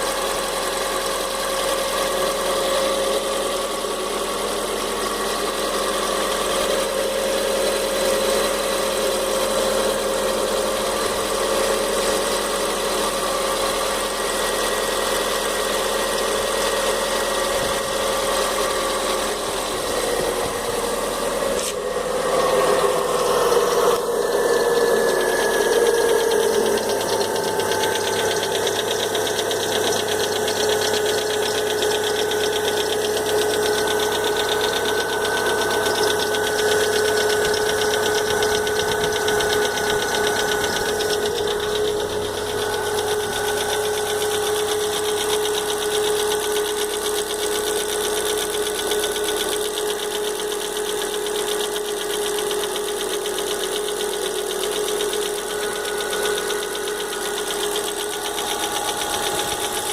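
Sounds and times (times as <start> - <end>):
car engine running: 0.0 - 59.9
engine whine: 1.8 - 50.0, 52.0 - 59.9
fast even ticking: 24.2 - 59.9.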